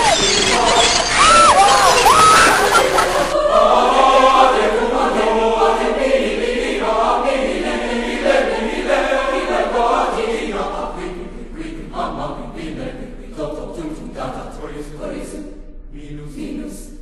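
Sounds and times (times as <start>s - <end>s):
gulls squawking: 0.0s - 3.4s
choir singing sustained chords: 0.0s - 17.0s.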